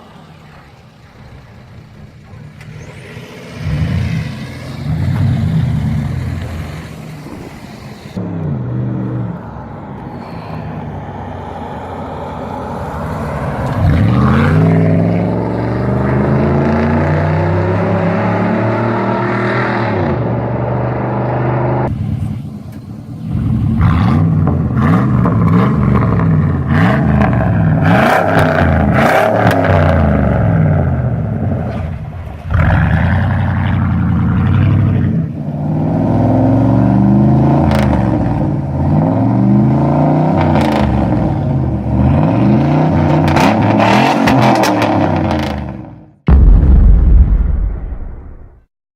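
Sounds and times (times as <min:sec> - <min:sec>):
van engine revving: 0:12.4 - 0:46.5.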